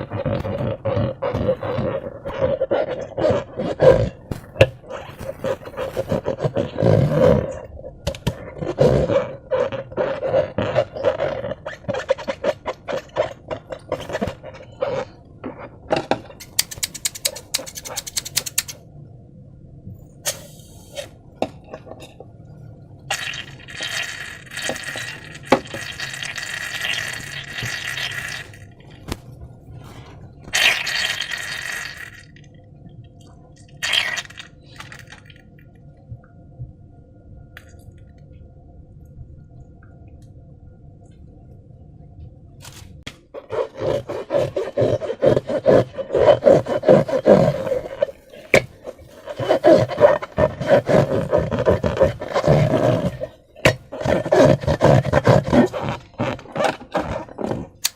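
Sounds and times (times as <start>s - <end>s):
slime hissing and scraping: 0.0s - 7.7s, 43.4s - 57.8s
slime squelching: 0.0s - 15.8s, 23.1s - 32.5s, 33.7s - 35.4s, 43.3s - 57.9s.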